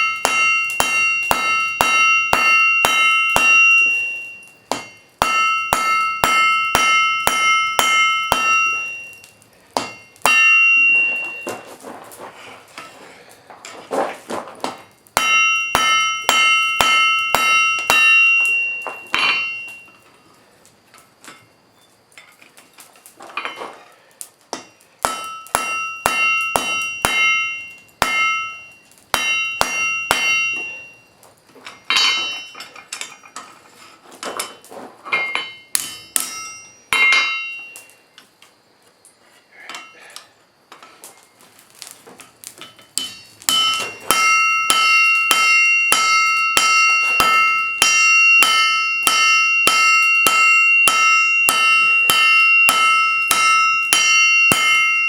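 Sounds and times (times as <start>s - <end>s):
hammer striking steel on an anvil: 0.0s - 11.7s, 14.6s - 20.0s, 24.5s - 33.5s, 34.2s - 38.0s, 42.6s - 55.0s.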